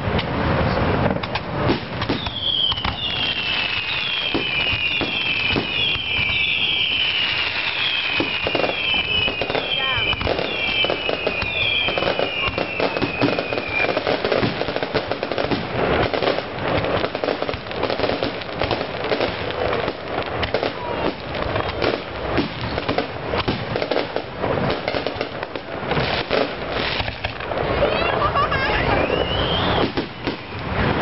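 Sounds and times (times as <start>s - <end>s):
fireworks bangs and crackling: 0.0s - 31.0s
whistling shells falling whistles: 2.2s - 14.0s, 29.0s - 30.7s.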